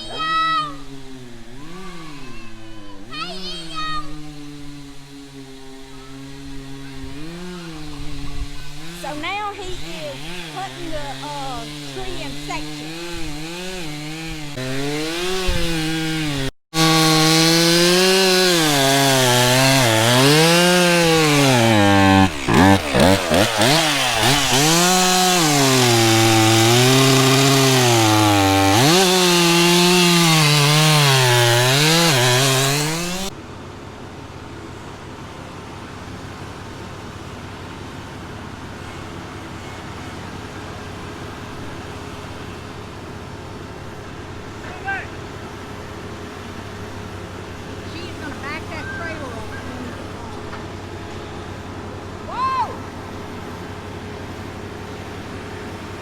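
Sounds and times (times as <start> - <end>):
chainsaw cutting wood: 0.0 - 33.4
quieter engine hum: 0.0 - 56.0.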